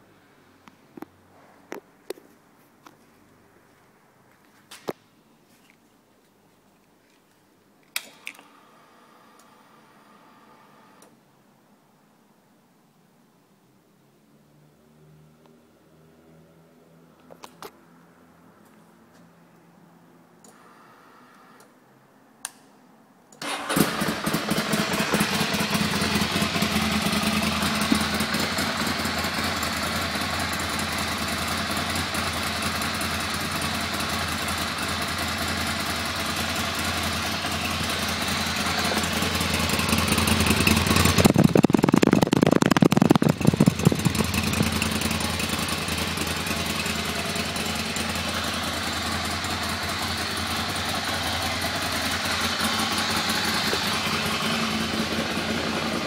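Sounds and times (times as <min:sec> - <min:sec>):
motorcycle engine idling: 0:23.8 - 0:56.0.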